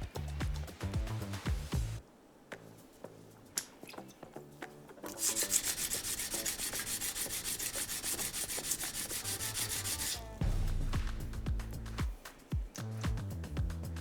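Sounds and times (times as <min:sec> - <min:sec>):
knife scraping on whetstone: 0:05.1 - 0:10.4.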